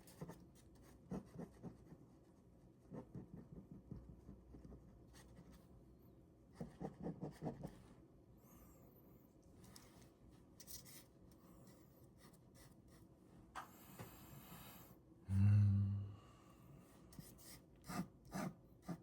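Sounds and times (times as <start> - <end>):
ballpoint pen scratching on paper: 0.0 - 2.1, 2.8 - 5.6, 6.6 - 7.8, 17.2 - 19.0.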